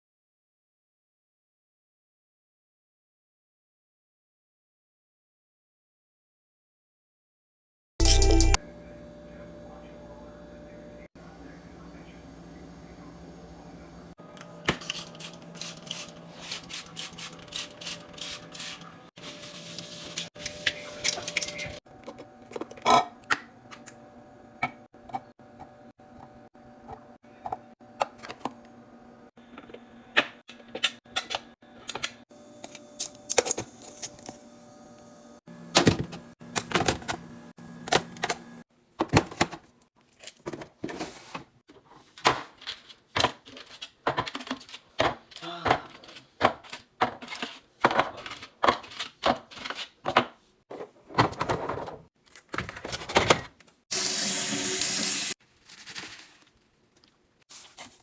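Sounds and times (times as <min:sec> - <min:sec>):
packaging rustling: 0:55.4 - 0:58.0.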